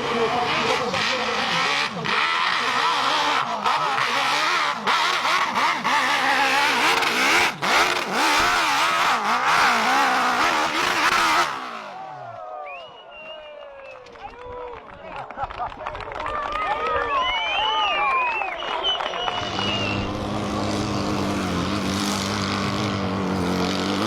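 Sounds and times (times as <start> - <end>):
motorcycle engine revving hard: 0.0 - 12.2, 19.3 - 24.0.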